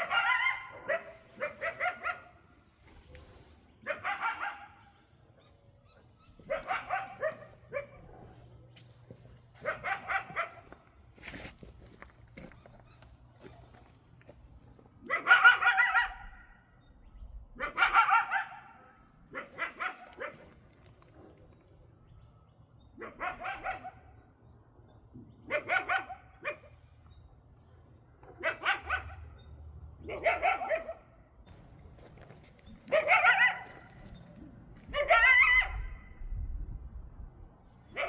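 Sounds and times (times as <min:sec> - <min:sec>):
coyote barking and yipping: 0:00.0 - 0:08.9, 0:09.5 - 0:11.0, 0:15.0 - 0:21.4, 0:22.8 - 0:24.3, 0:25.3 - 0:27.0, 0:28.2 - 0:31.3, 0:32.2 - 0:36.3.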